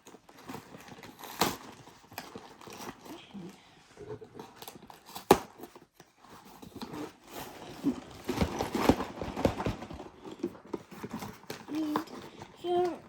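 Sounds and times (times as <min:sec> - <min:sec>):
plastic bags rustling: 0:06.4 - 0:13.0.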